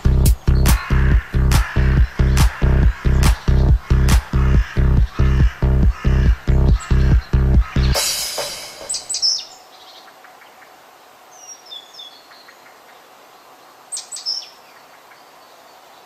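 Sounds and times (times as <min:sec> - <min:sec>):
electronic dance music beat: 0:00.0 - 0:09.1
songbirds chirping: 0:00.0 - 0:16.0
quiet hiss: 0:08.0 - 0:16.0.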